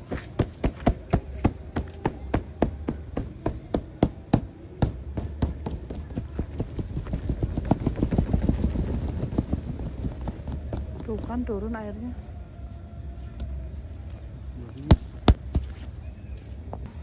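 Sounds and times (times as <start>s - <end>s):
raindrops tapping on tent fabric: 0.0s - 11.3s
wind rumble on microphone: 4.8s - 14.1s.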